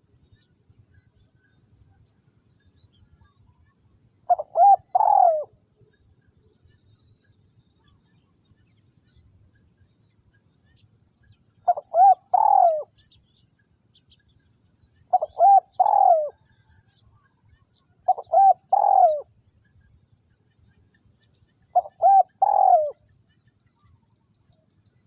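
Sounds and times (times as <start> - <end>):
dove cooing: 4.3 - 5.6, 11.6 - 13.0, 15.1 - 16.5, 18.0 - 19.3, 21.7 - 23.1.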